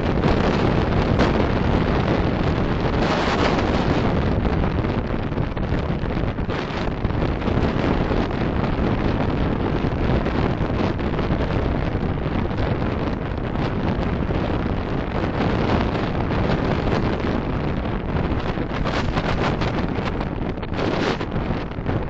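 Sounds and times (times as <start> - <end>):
car road and wind noise: 0.0 - 22.0.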